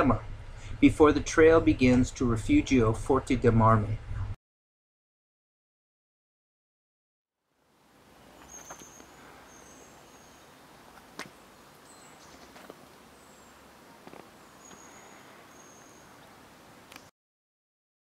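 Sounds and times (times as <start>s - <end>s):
steady hiss: 7.6s - 17.1s
high thin bird calls: 8.3s - 10.6s, 11.4s - 16.4s.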